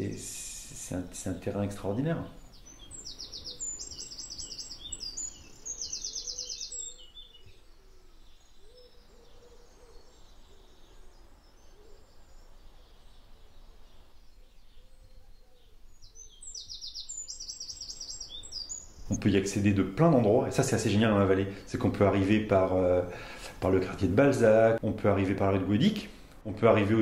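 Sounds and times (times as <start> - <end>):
low wavering bird calls: 1.9 - 19.5
songbird high trill: 2.3 - 19.2.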